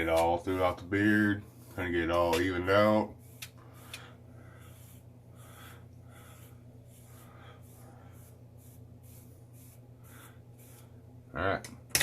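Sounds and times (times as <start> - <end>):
steady low hum: 0.0 - 12.0
comb scratching through beard: 1.7 - 11.0.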